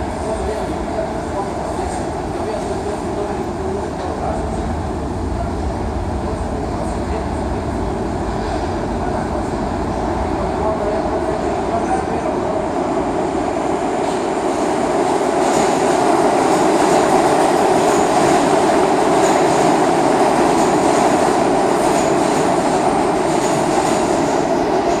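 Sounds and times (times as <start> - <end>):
subway train rolling on tracks: 0.0 - 25.0.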